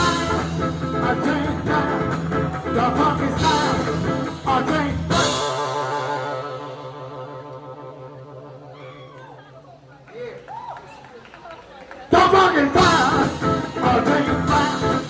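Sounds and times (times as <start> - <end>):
steady drum beat: 0.0 - 5.6, 12.2 - 15.0
funk band playing: 0.0 - 7.1, 12.1 - 15.0.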